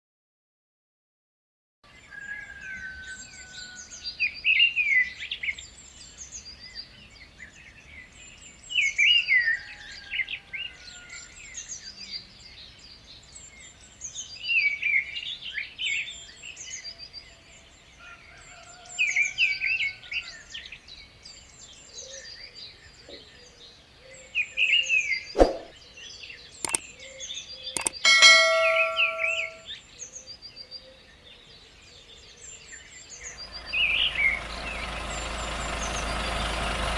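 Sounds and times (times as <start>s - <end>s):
birds chirping and twittering: 1.9s - 36.9s
sharp clicks: 27.8s - 29.6s
short pitched tone: 27.8s - 29.6s.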